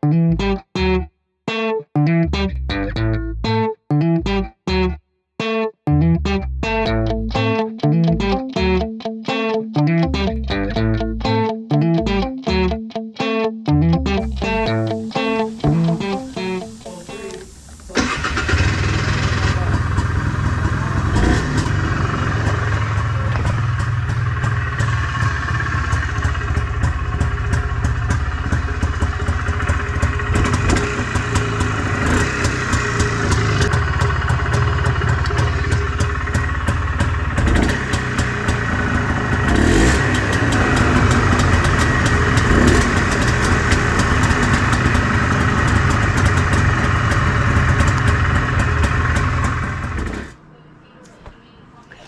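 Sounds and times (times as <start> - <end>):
two-stroke engine running: 17.9 - 50.4.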